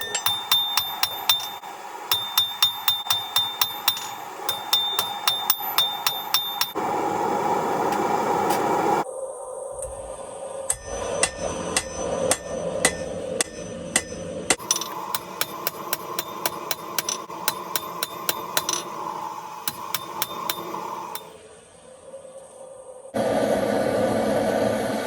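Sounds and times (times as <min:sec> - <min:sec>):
hammer striking steel on anvil: 0:00.0 - 0:06.8, 0:10.7 - 0:21.4
steady hum: 0:00.0 - 0:25.0.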